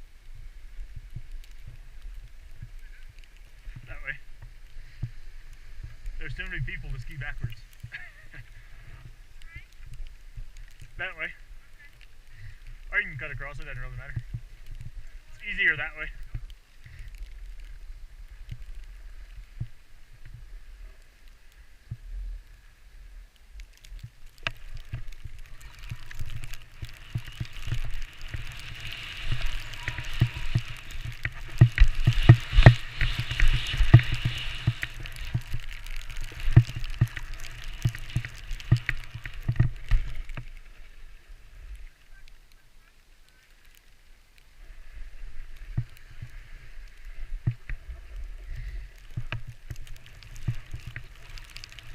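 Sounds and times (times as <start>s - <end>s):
skis scraping over snow: 0.0s - 22.8s, 23.7s - 51.9s.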